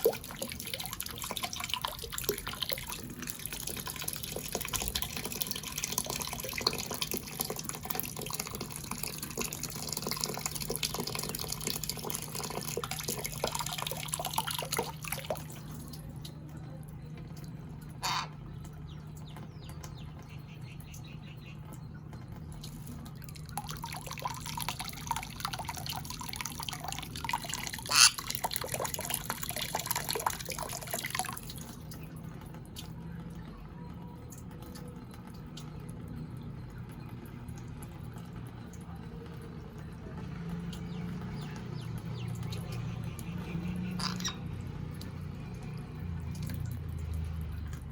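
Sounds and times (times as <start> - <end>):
water splashing and dripping: 0.0 - 47.9.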